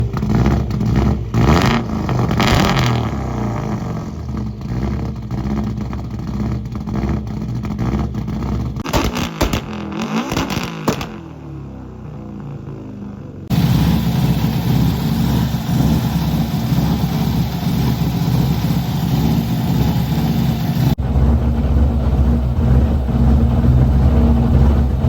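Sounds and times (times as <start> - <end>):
exhaust pops: 0.0 - 11.3, 13.5 - 25.0
rally car engine revving: 0.0 - 11.4, 13.5 - 25.0.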